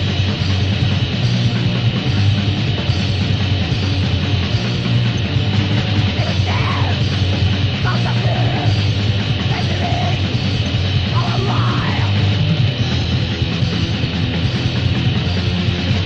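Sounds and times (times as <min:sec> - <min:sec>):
distorted guitars: 0:00.0 - 0:16.0
drums: 0:00.0 - 0:16.0
person yelling vocals: 0:06.2 - 0:07.0, 0:07.9 - 0:08.7, 0:09.5 - 0:10.2, 0:11.1 - 0:12.3.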